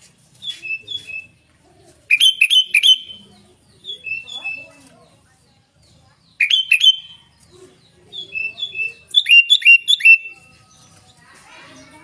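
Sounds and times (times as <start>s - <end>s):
bird singing sharp notes: 2.1s - 4.8s, 6.2s - 7.5s, 8.1s - 11.1s
soft whistled bird notes: 8.2s - 11.0s.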